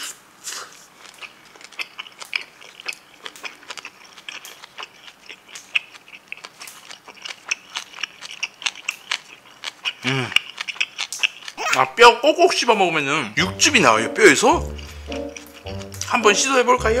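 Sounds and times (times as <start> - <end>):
wet crunchy chewing: 0.0 - 11.9, 13.4 - 17.0.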